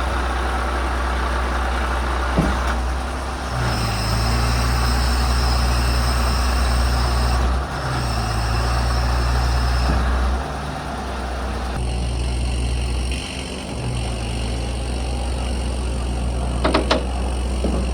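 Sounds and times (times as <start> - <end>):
diesel truck engine idling: 0.0 - 17.9.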